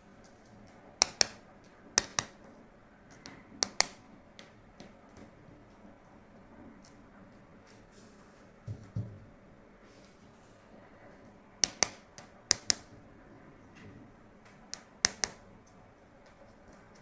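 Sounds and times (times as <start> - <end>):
sharp clicks: 1.0 - 2.4, 3.1 - 4.9, 11.6 - 12.9, 14.4 - 15.8.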